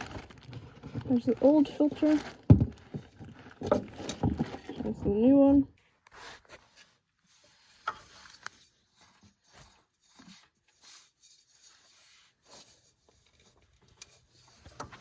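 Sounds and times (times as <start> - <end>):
parts clicking and rustling: 0.0 - 5.2.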